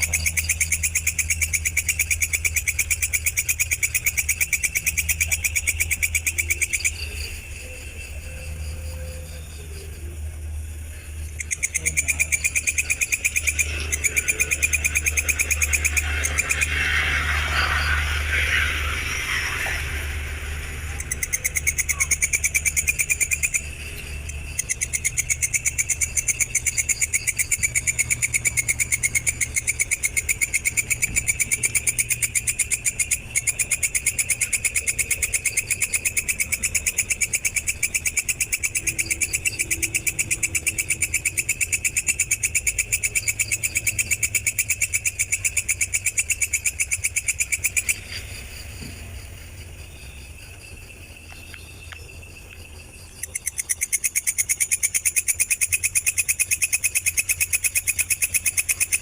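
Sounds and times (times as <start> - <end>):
insect trilling: 0.0 - 59.0
hissing burst: 13.5 - 21.9.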